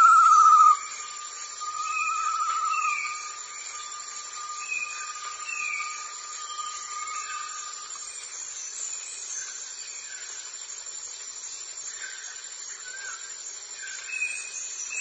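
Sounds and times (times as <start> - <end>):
whistled bird calls: 0.0 - 0.9
insects hissing: 0.0 - 15.0.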